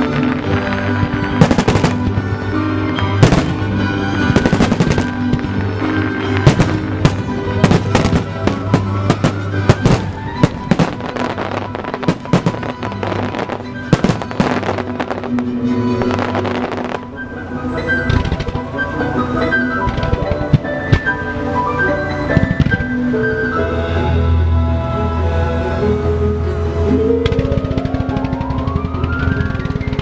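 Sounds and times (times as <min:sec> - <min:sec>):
fireworks bursting: 0:00.0 - 0:17.2, 0:17.8 - 0:18.8, 0:19.4 - 0:21.3, 0:22.0 - 0:23.1, 0:27.2 - 0:30.0
loud music: 0:00.0 - 0:30.0.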